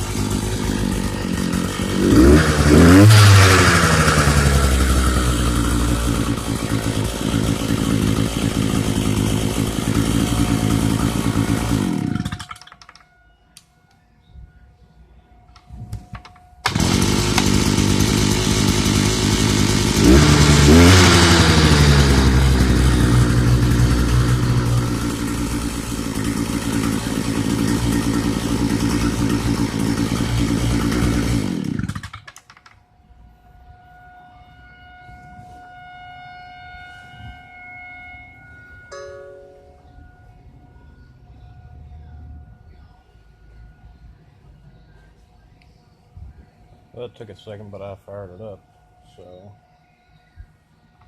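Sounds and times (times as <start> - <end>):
two-stroke auger engine running: 0.0 - 13.0, 16.1 - 32.7.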